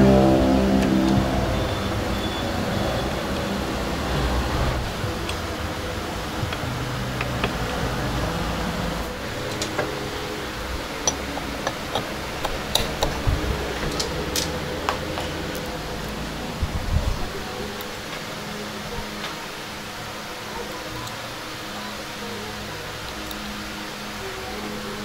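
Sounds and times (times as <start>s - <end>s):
steady background hum: 0.0s - 25.0s.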